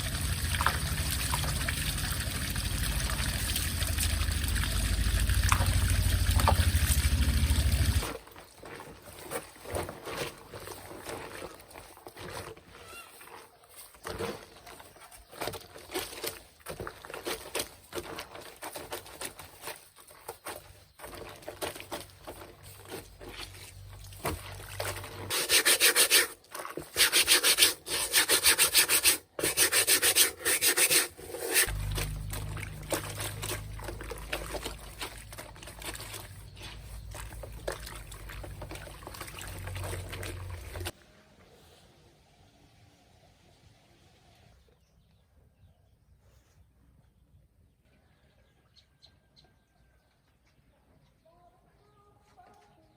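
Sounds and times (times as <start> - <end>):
low hum: 0.0 - 8.0, 31.7 - 35.6
scraping strokes by hand: 15.4 - 31.7.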